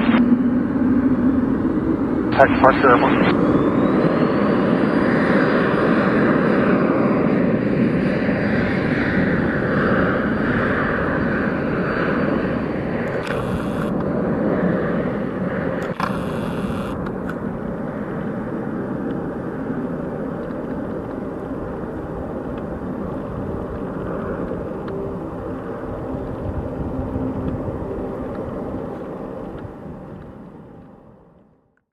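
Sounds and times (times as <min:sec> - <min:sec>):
jet engines roaring at takeoff: 0:00.0 - 0:31.6
high turbine whine: 0:00.0 - 0:31.7
sharp click: 0:15.8 - 0:17.4.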